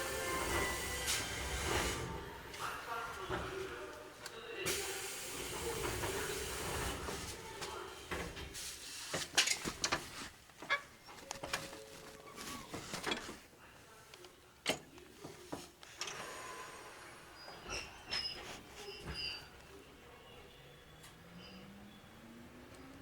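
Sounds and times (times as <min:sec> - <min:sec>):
train car clicks and creaks: 0:09.2 - 0:13.4.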